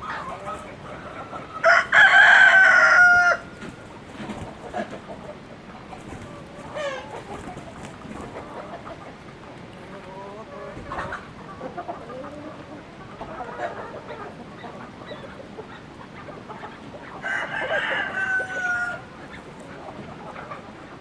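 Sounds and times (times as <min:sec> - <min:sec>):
chickens clucking: 0:00.0 - 0:21.0
rooster crowing: 0:01.6 - 0:03.6, 0:17.2 - 0:19.1.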